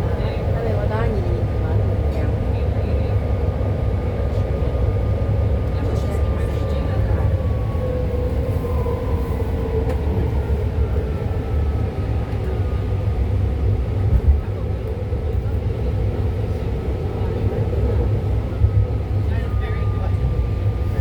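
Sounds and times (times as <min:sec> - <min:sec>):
faint train whine: 0:00.0 - 0:21.0
train rumbling: 0:00.0 - 0:21.0.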